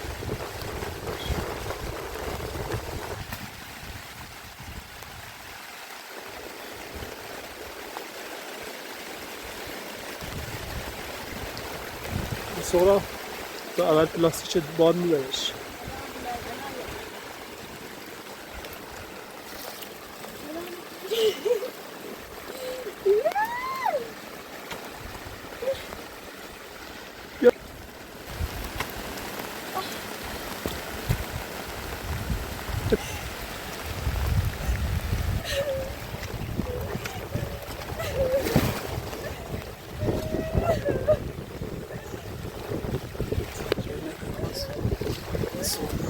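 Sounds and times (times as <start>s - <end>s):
wind buffeting microphone: 0.0s - 5.5s, 10.2s - 13.4s, 27.8s - 29.2s, 30.3s - 46.0s
steady rain hiss: 0.0s - 46.0s
person calling out: 39.2s - 41.3s.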